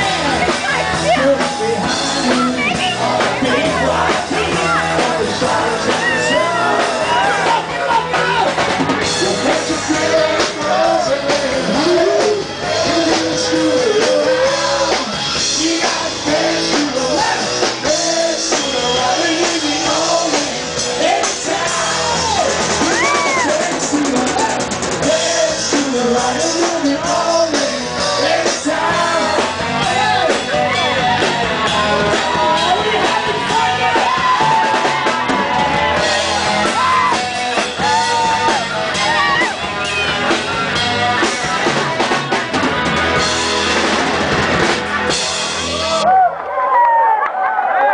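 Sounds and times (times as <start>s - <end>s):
live rock band playing: 0.0s - 46.2s
drum kit: 0.0s - 46.3s
person singing: 1.0s - 8.2s, 9.0s - 40.1s.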